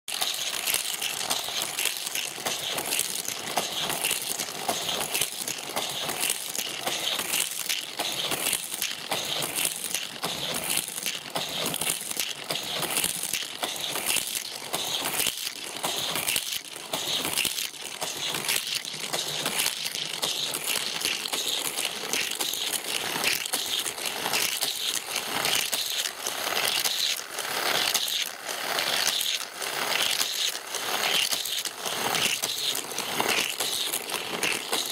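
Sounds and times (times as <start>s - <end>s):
toy cars rattling on plastic track: 0.1s - 34.9s.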